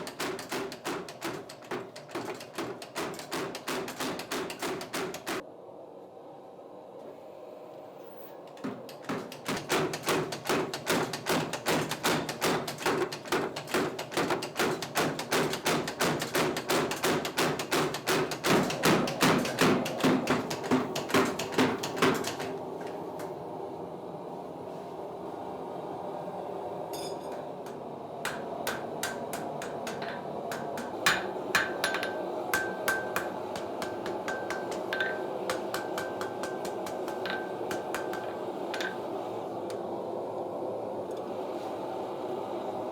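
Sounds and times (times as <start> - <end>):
hammer striking iron on anvil: 0.0 - 5.4, 8.9 - 22.5, 28.2 - 39.1.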